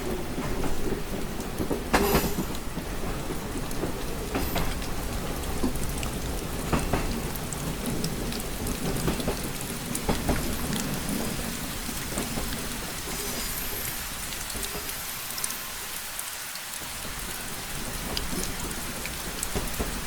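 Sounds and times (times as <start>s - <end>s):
rain on window glass: 0.0s - 20.0s.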